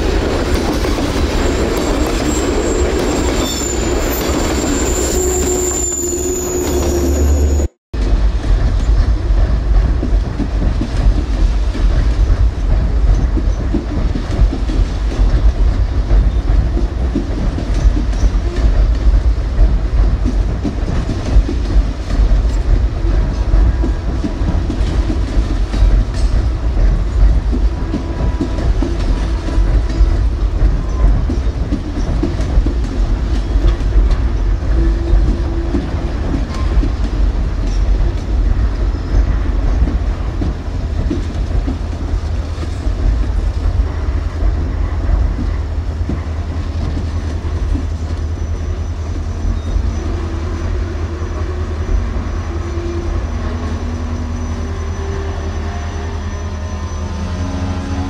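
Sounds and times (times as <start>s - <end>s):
railcar wheels rumbling on rails: 0.0s - 58.0s.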